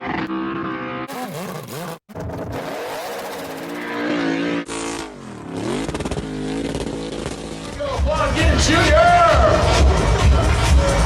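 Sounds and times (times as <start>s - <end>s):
motorsport engines revving: 0.0s - 8.9s.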